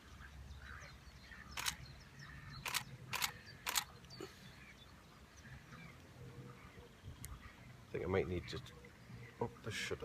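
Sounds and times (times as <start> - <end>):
camera shutter firing: 1.6 - 1.8, 2.6 - 3.9.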